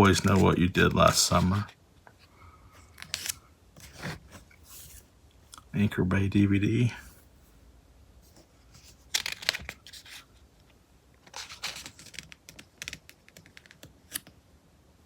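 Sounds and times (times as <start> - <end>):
paper rustling: 0.0 - 1.7, 8.3 - 10.3, 11.2 - 14.2.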